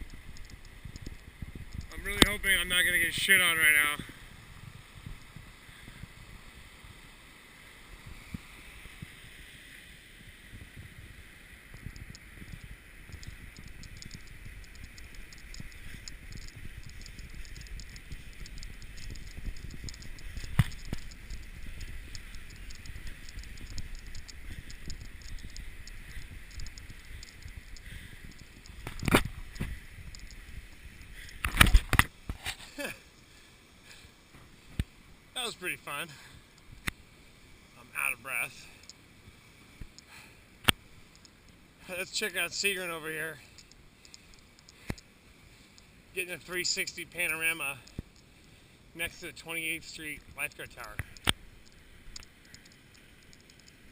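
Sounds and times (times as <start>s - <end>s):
faint rapid ticking: 0.0s - 4.2s, 11.7s - 31.7s, 39.8s - 53.9s
wind rumbling on microphone: 0.0s - 32.8s.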